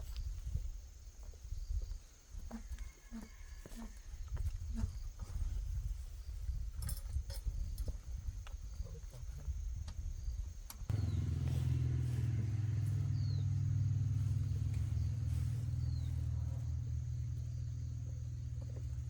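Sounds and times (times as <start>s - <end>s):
vehicle engine idling: 10.9s - 19.0s.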